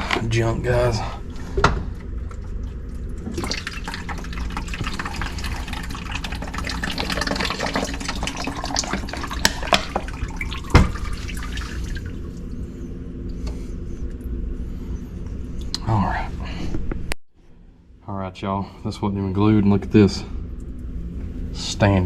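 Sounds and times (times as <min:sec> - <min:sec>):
wet vac slurping water: 0:02.0 - 0:12.5.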